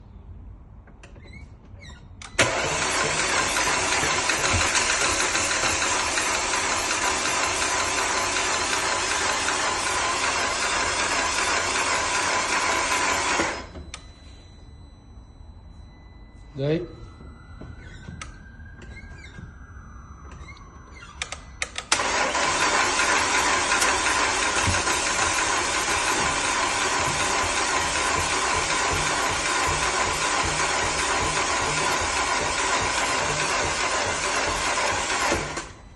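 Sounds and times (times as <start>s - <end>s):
starter motor cranking: 2.3s - 13.7s, 21.0s - 35.8s.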